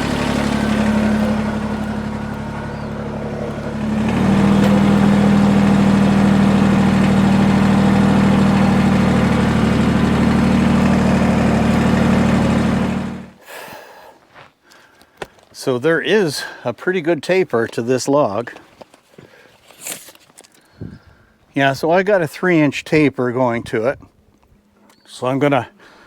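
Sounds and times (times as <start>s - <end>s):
tractor engine running: 0.0s - 13.4s.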